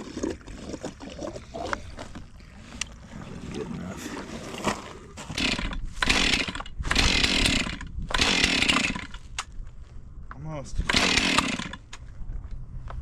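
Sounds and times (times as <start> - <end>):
chainsaw engine sputtering: 5.2 - 9.3, 10.8 - 11.9
chainsaw pull-start cord: 5.2 - 9.5, 10.8 - 12.0.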